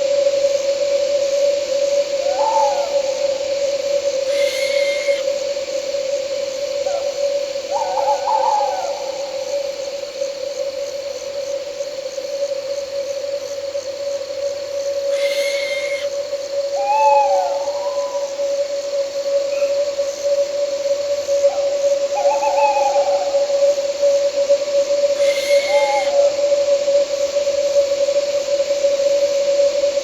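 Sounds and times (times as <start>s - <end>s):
crickets chirping: 0.0s - 30.0s
owl hooting: 2.0s - 5.4s, 7.7s - 9.6s, 14.8s - 18.6s, 19.5s - 19.8s, 21.4s - 23.6s, 24.9s - 26.6s.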